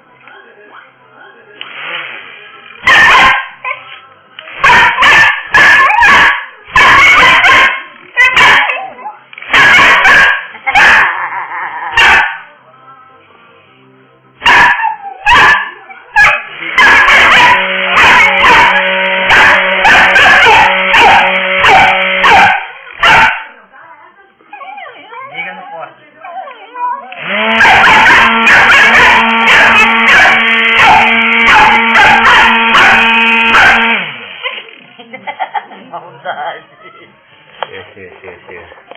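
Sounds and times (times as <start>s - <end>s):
dog barking and whining: 2.8s - 3.9s, 4.6s - 12.5s, 14.4s - 23.5s, 24.5s - 34.7s.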